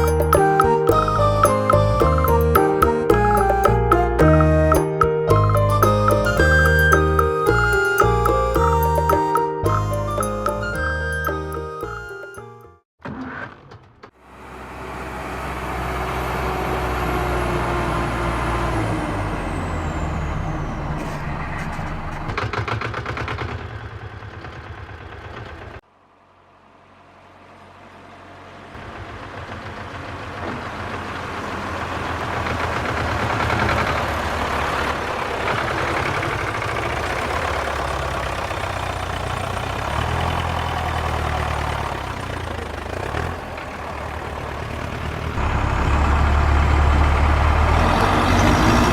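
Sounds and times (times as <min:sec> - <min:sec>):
high whistle falling in pitch: 0:00.0 - 0:12.8
heavy vehicle engine running: 0:26.6 - 0:48.9.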